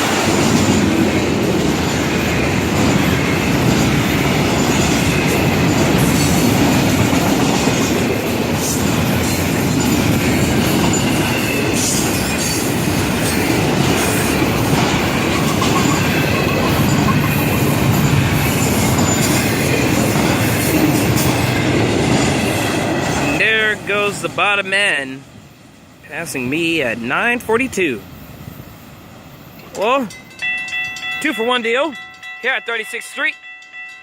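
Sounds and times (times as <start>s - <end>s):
freight cars rumbling and clattering: 0.0s - 24.8s
high wheel squeal: 9.3s - 20.8s.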